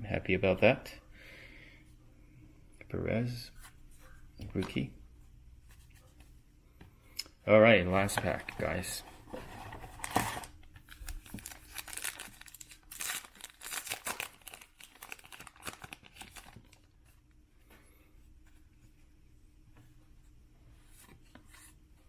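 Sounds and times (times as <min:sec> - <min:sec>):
foil wrapper tearing and crinkling: 0:11.1 - 0:17.0.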